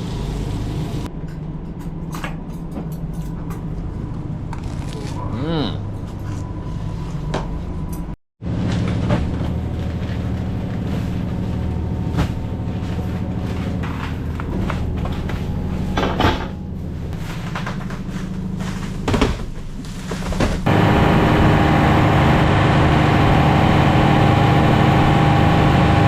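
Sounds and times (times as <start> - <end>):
boat engine droning: 8.5 - 18.6, 20.7 - 26.0.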